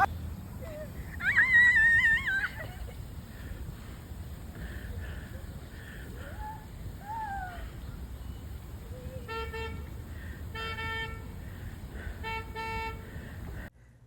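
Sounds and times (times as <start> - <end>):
low outdoor rumble: 0.0 - 14.0
car horn honks: 9.2 - 9.9, 10.5 - 11.4, 12.2 - 13.1.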